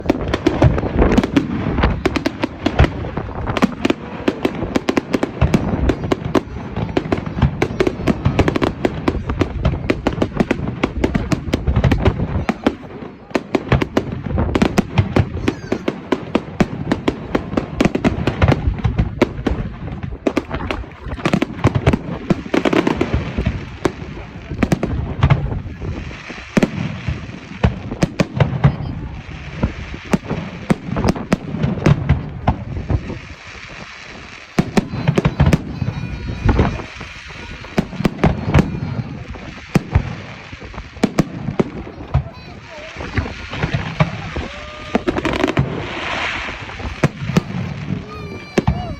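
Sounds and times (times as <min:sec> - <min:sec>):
crowd chatter: 0:00.0 - 0:48.9
fireworks bangs and crackling: 0:00.0 - 0:48.9.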